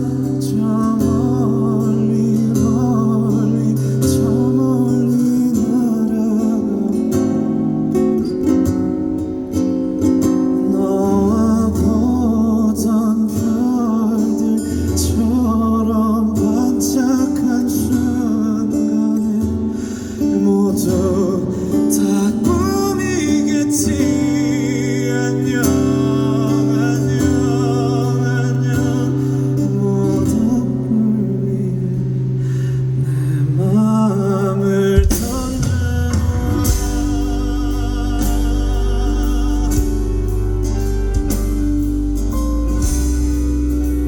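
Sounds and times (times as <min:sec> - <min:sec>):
acoustic guitar strumming: 0:00.0 - 0:44.0
sustained melody line: 0:15.2 - 0:44.0.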